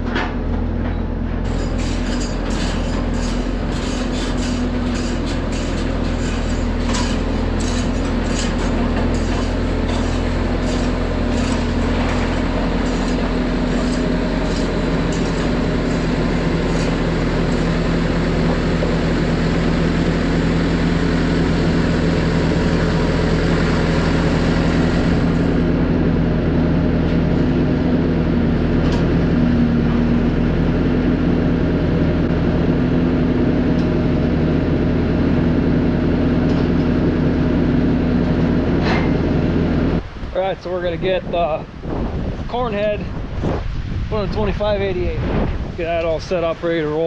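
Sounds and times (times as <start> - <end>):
diesel engine running steadily: 0.0 - 47.0.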